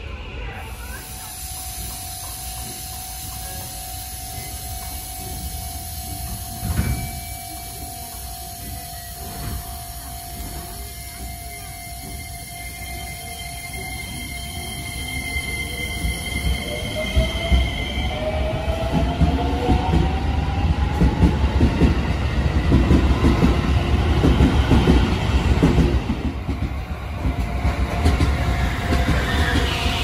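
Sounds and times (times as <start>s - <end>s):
train wheels clattering on rails: 4.6s - 14.2s, 18.8s - 30.0s.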